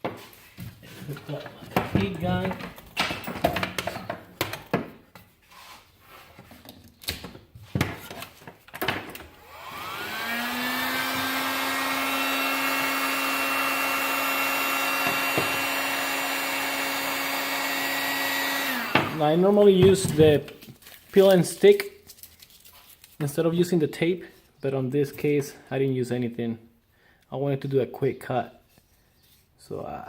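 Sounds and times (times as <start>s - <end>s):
handling knocks and clicks: 0.0s - 5.3s
heat gun fan motor whining: 9.2s - 19.5s.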